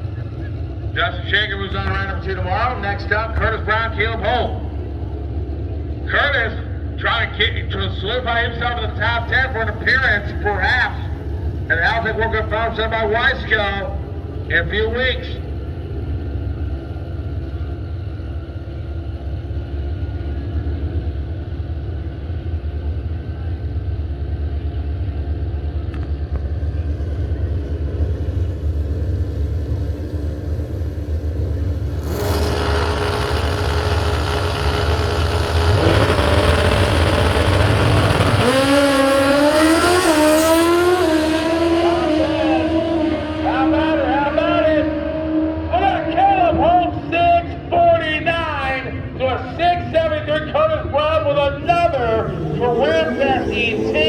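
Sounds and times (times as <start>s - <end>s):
motorcycle engines idling: 0.0s - 42.2s, 51.3s - 54.0s
motorcycle accelerating through gears: 25.0s - 45.7s, 51.6s - 54.0s.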